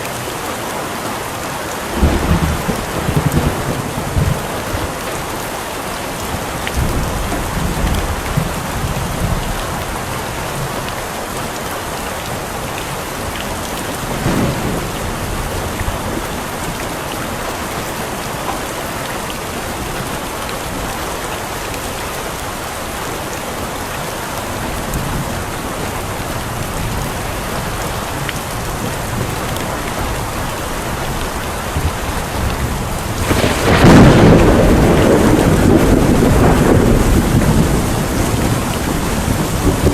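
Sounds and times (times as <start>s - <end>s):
heavy rain: 0.0s - 39.9s
rolling thunder: 14.0s - 16.8s, 31.1s - 39.9s.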